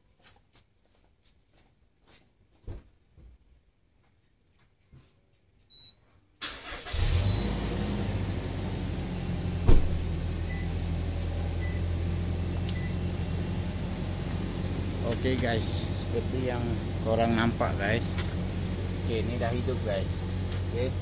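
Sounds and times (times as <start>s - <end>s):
car engine cranking and idling: 6.4s - 21.0s.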